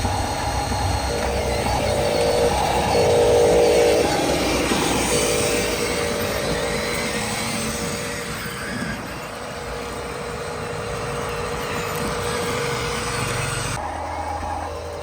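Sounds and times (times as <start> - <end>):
electric motors whining: 0.0 - 15.0
running hum: 0.0 - 15.0.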